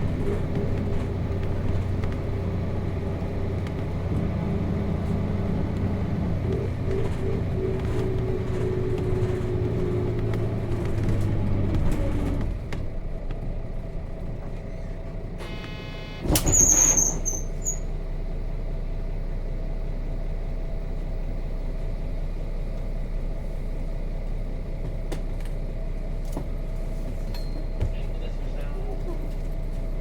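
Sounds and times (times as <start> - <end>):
diesel bus engine idling: 0.0 - 30.0
short buzzer tone: 15.4 - 16.3
high squeal: 16.4 - 17.9.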